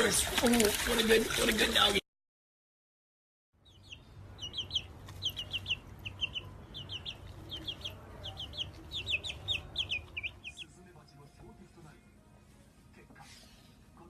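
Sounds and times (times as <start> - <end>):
rapid high-pitched peeps: 3.7 - 10.7.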